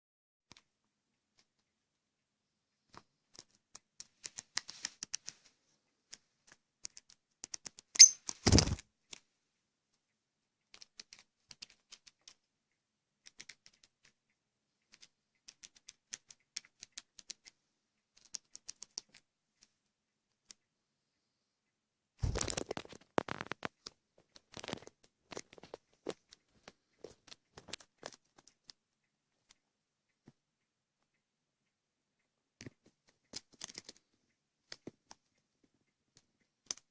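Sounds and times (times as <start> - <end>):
bird beak pecking and tapping: 2.9 - 5.4, 6.0 - 9.2, 10.6 - 12.4, 13.2 - 19.7, 22.3 - 28.8, 32.6 - 34.1, 34.7 - 36.9.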